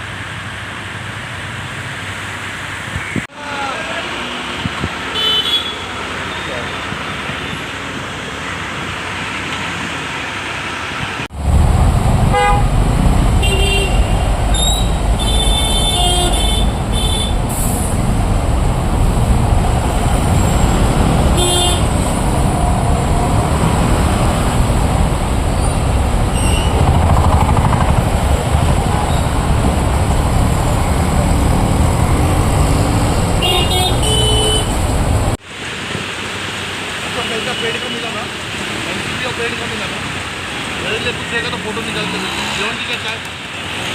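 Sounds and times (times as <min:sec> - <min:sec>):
road traffic rumble: 0:00.0 - 0:43.9
vehicle horns honking: 0:05.1 - 0:06.7, 0:12.3 - 0:12.7, 0:13.4 - 0:17.4, 0:21.2 - 0:22.1, 0:26.3 - 0:26.8, 0:33.4 - 0:34.9.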